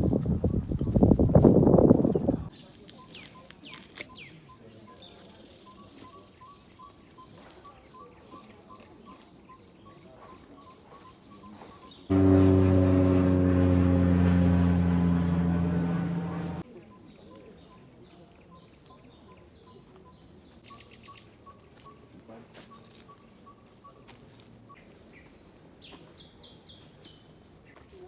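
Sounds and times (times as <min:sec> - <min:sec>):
loud steady low hum: 0:12.1 - 0:16.6.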